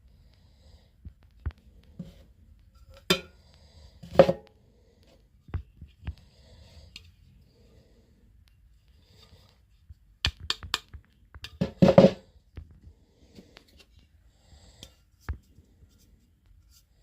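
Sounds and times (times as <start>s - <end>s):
objects knocking and clicking: 10.2s - 12.8s.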